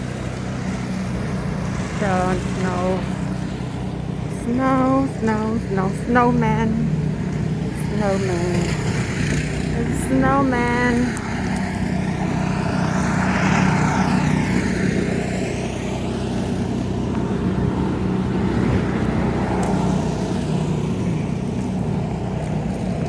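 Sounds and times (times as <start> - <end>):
vehicle engine running: 0.0 - 23.0
vehicles passing by: 0.0 - 23.0.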